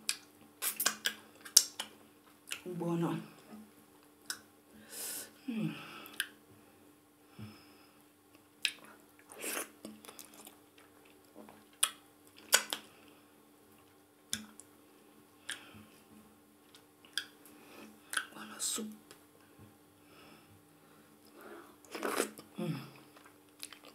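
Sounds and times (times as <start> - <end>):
lip smacks and clicks: 0.0 - 2.7, 4.2 - 4.5, 6.1 - 6.4, 9.8 - 12.9, 18.1 - 18.3
quiet chewing: 21.2 - 23.9.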